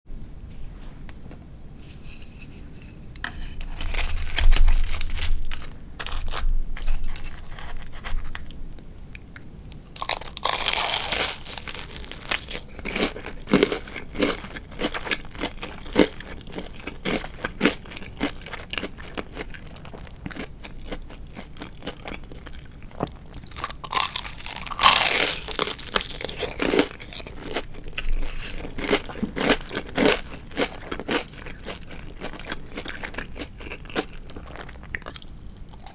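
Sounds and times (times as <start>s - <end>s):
wet crackly chewing: 4.2s - 35.9s
crunchy bites into fried chicken: 10.0s - 22.1s, 23.0s - 35.2s.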